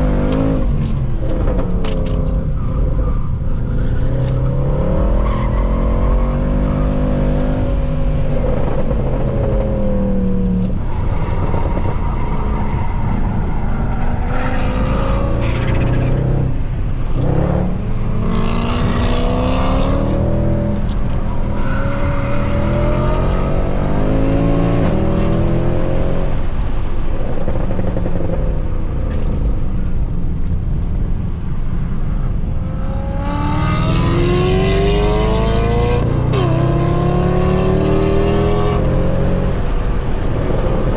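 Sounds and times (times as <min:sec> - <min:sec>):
car engine revving hard: 0:17.1 - 0:20.9, 0:33.0 - 0:39.8.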